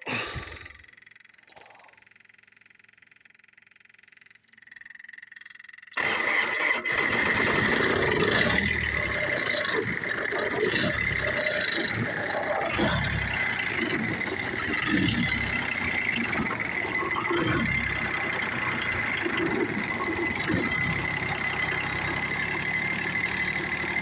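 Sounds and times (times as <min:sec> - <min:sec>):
diesel engine starting: 0:05.4 - 0:24.0.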